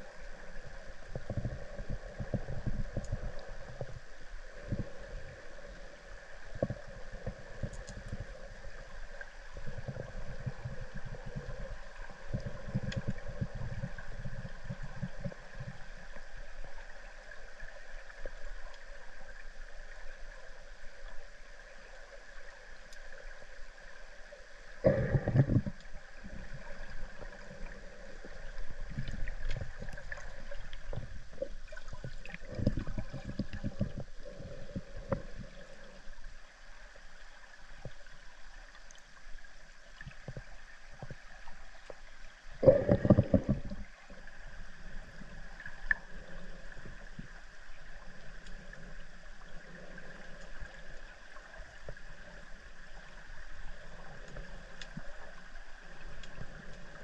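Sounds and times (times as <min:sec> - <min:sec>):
faint constant hum: 0:00.0 - 0:57.0
underwater river gurgling: 0:00.0 - 0:57.0
rumbling bubbling bursts: 0:09.5 - 0:15.9, 0:24.8 - 0:35.8, 0:42.6 - 0:44.2.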